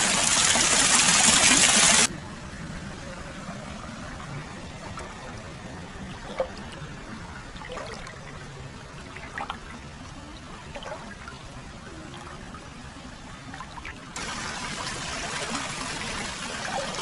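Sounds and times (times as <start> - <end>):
water pouring into a bath: 0.0 - 2.1
water splashes: 2.8 - 17.0.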